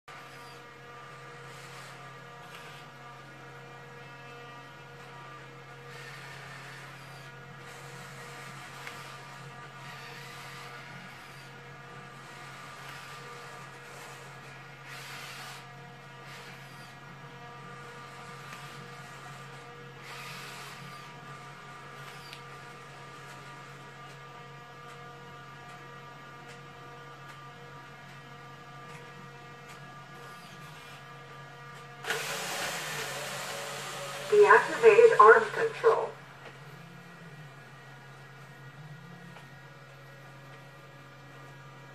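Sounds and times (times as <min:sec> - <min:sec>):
electrical hum with whine: 0:00.0 - 0:41.9
hissy whirring of servos: 0:32.0 - 0:35.4.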